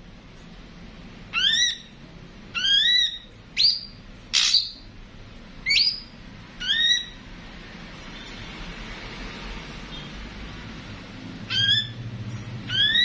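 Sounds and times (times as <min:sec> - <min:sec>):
bird whistled calls: 0:01.3 - 0:04.8, 0:05.6 - 0:07.2, 0:11.5 - 0:12.0, 0:12.7 - 0:13.0.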